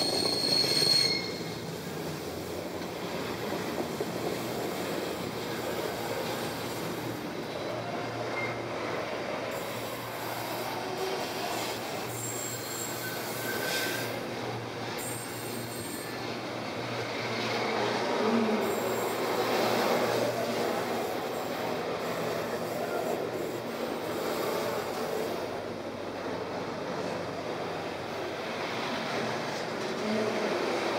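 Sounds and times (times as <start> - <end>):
faint wheel squeals: 0.0 - 1.6, 11.5 - 14.2
train wheels rumbling on rail: 0.0 - 30.9.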